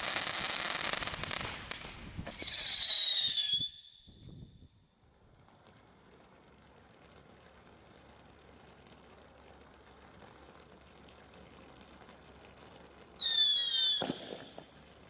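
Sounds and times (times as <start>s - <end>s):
firework bang: 0.0s - 4.4s, 13.2s - 14.9s
firework whistling: 0.0s - 4.7s, 8.7s - 15.0s
faint outdoor background: 0.0s - 15.0s.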